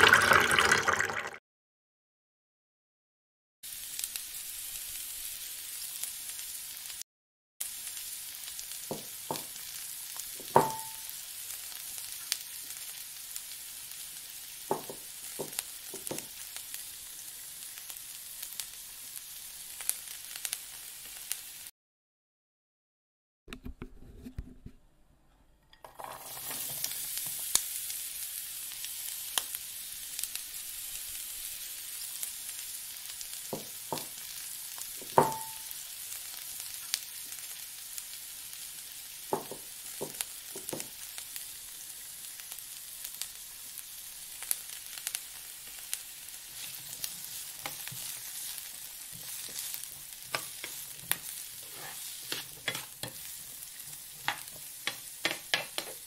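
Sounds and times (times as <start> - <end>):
food sizzling in oil: 3.6 - 7.0, 7.6 - 21.7, 25.9 - 56.0
metal spoon knocking pan: 10.4 - 11.0, 35.1 - 35.6.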